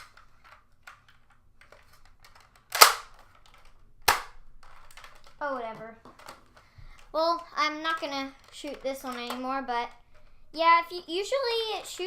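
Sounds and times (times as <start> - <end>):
toy dart blaster firing: 2.7 - 3.1.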